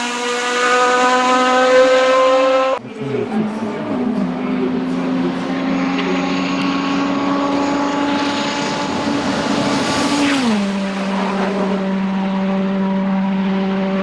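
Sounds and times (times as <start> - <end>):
race car engine: 0.0 - 14.0.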